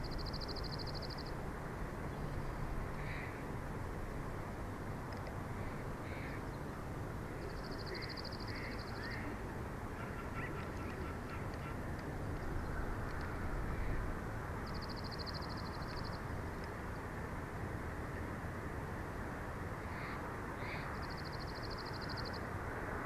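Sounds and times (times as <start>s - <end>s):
faint bird calls: 3.0s - 3.5s, 7.3s - 14.0s, 19.8s - 22.4s.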